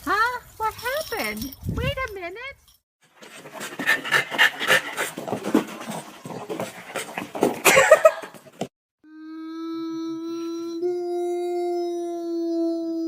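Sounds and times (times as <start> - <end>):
dog panting: 3.0 - 8.7.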